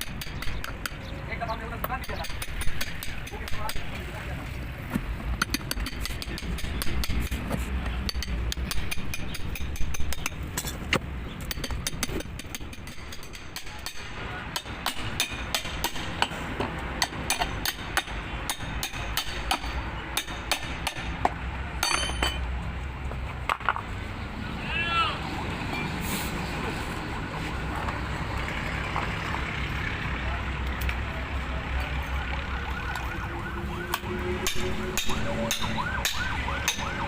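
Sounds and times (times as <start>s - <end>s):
metal tools tapping and clinking: 8.0s - 16.4s, 21.8s - 22.5s.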